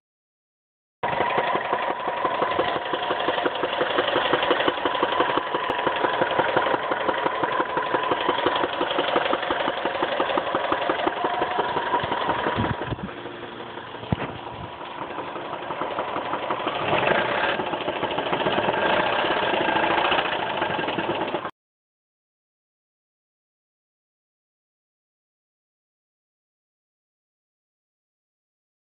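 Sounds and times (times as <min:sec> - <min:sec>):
car engine ticking knock: 0:01.0 - 0:21.5.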